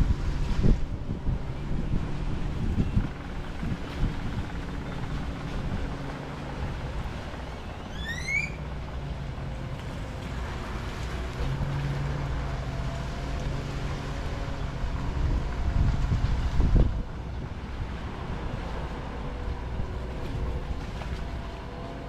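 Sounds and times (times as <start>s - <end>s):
distant boat motor hum: 0.0s - 22.0s
wind: 0.0s - 22.0s
rising whistled note: 7.8s - 8.6s
water washing on shore: 8.6s - 22.0s.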